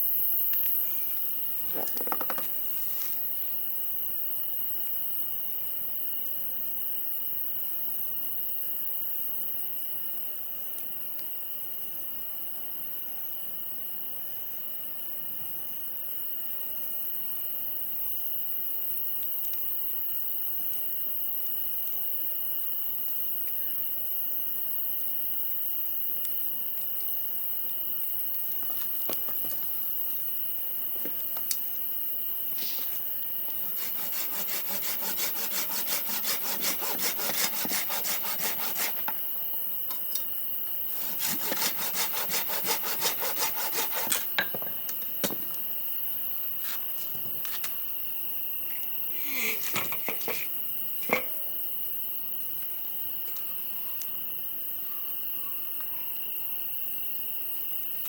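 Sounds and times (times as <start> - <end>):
hand saw cutting wood: 33.5 - 39.1, 40.9 - 44.3.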